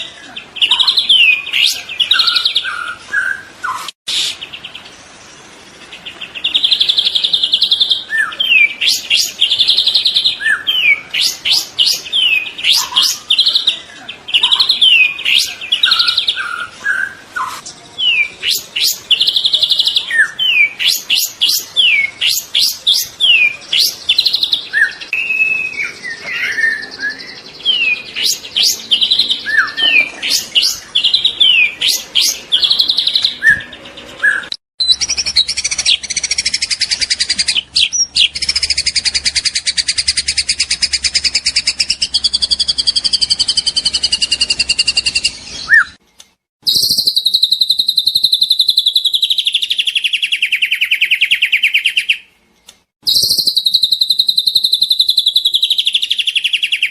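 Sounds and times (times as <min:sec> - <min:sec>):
bird whistled song: 0:00.0 - 0:04.7, 0:06.2 - 0:46.0, 0:46.6 - 0:52.3, 0:53.0 - 0:56.9
bird buzzy trill: 0:46.6 - 0:52.2, 0:53.0 - 0:56.9.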